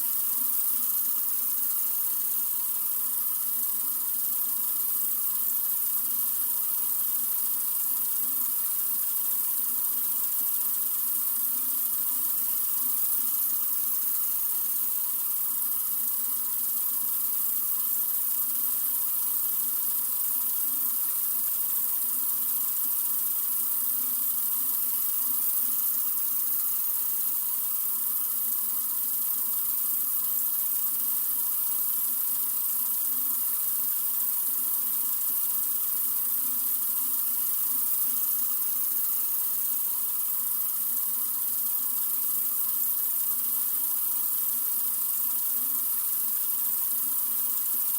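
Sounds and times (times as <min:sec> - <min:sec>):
sink faucet running: 0:00.0 - 0:47.9.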